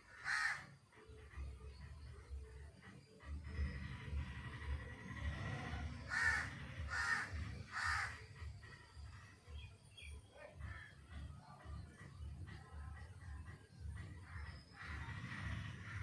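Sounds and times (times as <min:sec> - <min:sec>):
bird harsh calls: 0:00.0 - 0:16.0.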